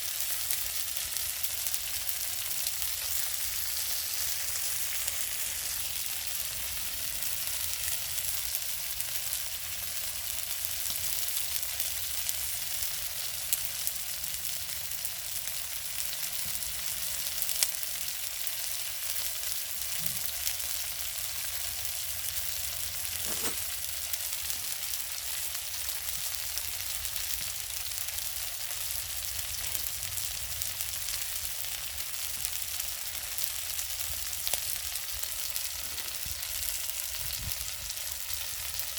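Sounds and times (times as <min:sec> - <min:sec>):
clams sizzling on a grill: 0:00.0 - 0:38.9
sharp pops: 0:23.2 - 0:23.7.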